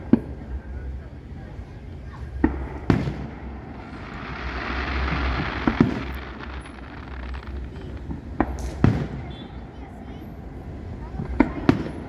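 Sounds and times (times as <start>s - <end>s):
steady background noise: 1.4s - 11.1s
fireworks bursting with bangs: 2.1s - 9.8s.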